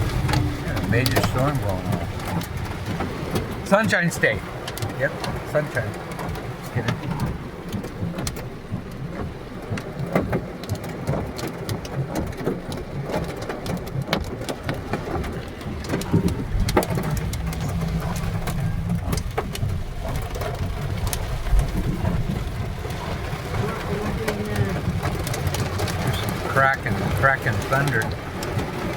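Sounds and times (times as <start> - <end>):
low rumble: 0.0 - 3.7, 12.2 - 28.5
heavy rain: 0.0 - 28.9.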